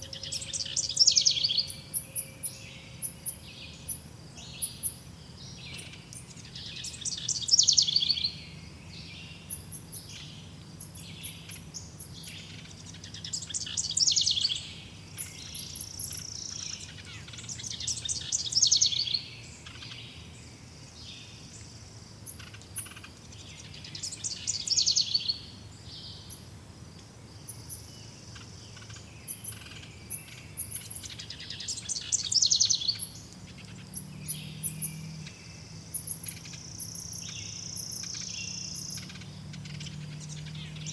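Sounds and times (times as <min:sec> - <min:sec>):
songbird singing rapid phrase: 0:00.0 - 0:26.6, 0:27.2 - 0:40.9
thin high bird chirps: 0:27.5 - 0:40.9.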